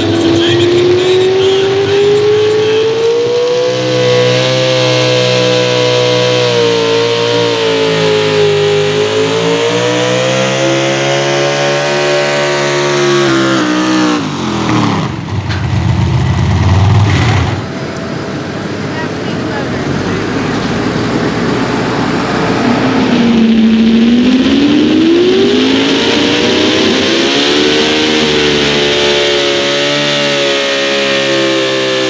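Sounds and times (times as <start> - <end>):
engine at full throttle: 0.0 - 32.0
rumbling noise: 14.3 - 29.8.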